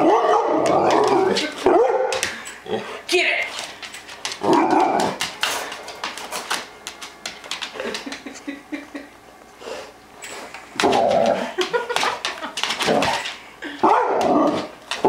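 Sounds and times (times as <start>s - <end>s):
dog scuffling with toy helicopter: 10.2s - 15.0s.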